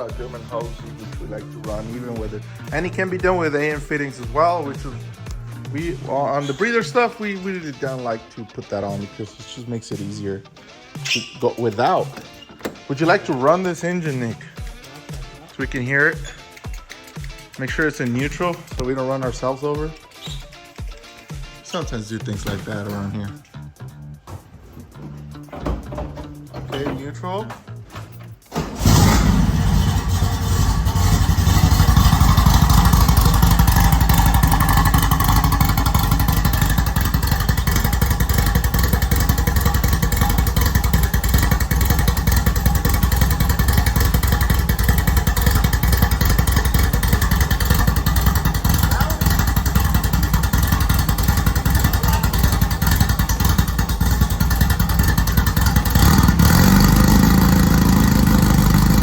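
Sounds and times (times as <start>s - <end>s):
car engine starting and running: 24.2s - 59.0s.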